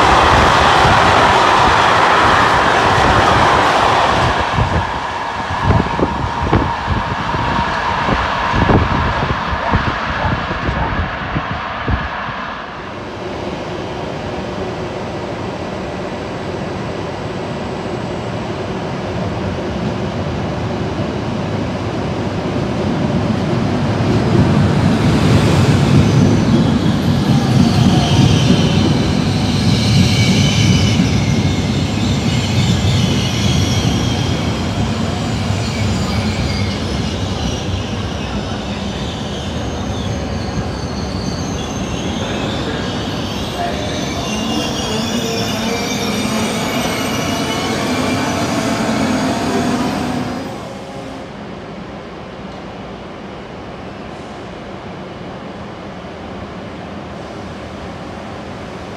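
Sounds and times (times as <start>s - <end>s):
train rumbling past: 0.0s - 58.9s
metallic wheel squeal: 27.7s - 49.7s.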